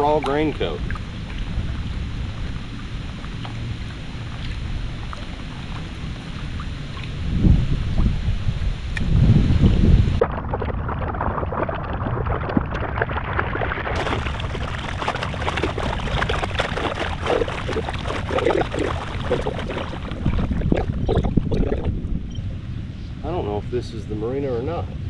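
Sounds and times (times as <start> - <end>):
water slapping against kayak: 0.0 - 8.4, 10.1 - 22.2
wind rumbling on microphone: 0.0 - 25.0.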